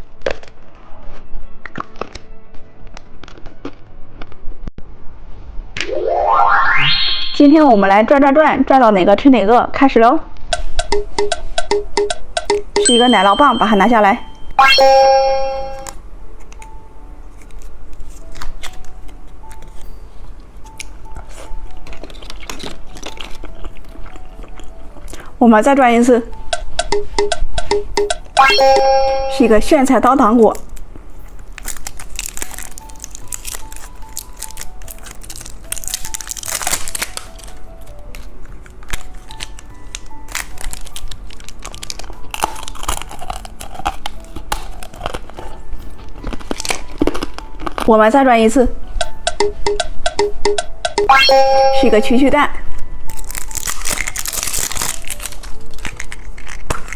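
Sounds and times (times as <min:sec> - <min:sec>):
soft background music: 0:00.0 - 0:56.9
candy packaging crinkling: 0:17.3 - 0:19.9, 0:20.7 - 0:25.4, 0:30.5 - 0:48.6, 0:52.8 - 0:56.9
plastic snack wrapper crackling: 0:20.8 - 0:25.3, 0:31.4 - 0:48.2, 0:53.1 - 0:56.9.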